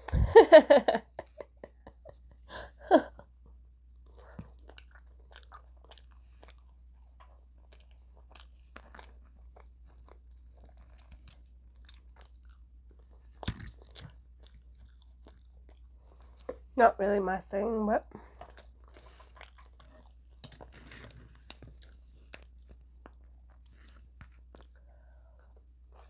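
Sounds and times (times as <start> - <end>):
crunching fried chicken: 4.2 - 16.5, 18.3 - 25.1.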